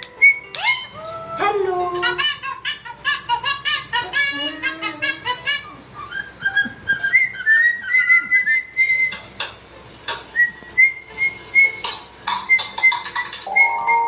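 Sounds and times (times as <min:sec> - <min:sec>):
high-pitched whistling: 0:06.0 - 0:09.2, 0:12.4 - 0:14.0.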